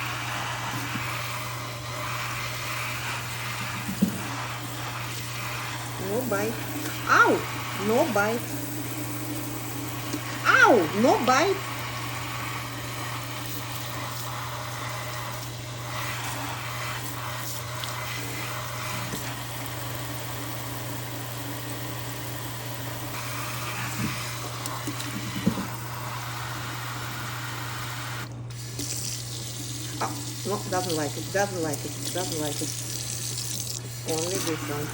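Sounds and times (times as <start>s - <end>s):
tap running into sink: 3.5s - 4.4s, 23.9s - 25.8s, 28.5s - 31.0s.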